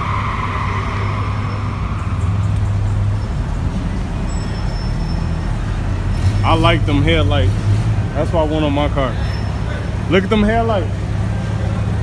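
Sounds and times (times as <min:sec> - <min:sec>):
car engines running: 0:00.0 - 0:12.0.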